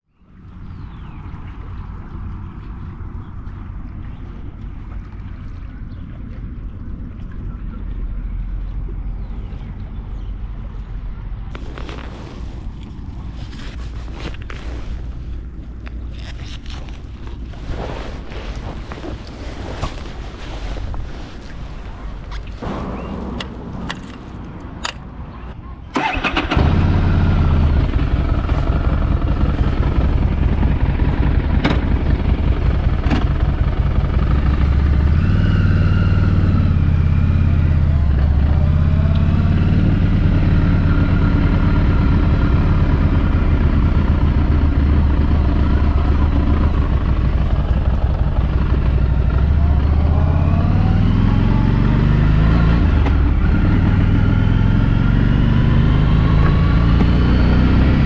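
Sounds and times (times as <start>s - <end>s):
motorcycle engine revving: 26.0s - 58.0s.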